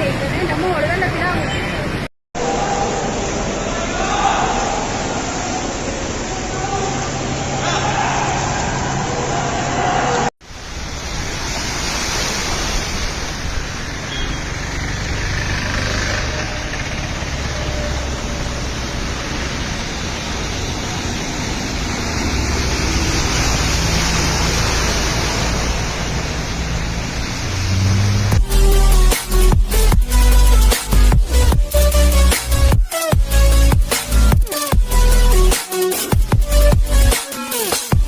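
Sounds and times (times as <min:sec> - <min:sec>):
continuous rushing noise: 0:01.9 - 0:30.0
vehicle engine running: 0:14.6 - 0:30.6.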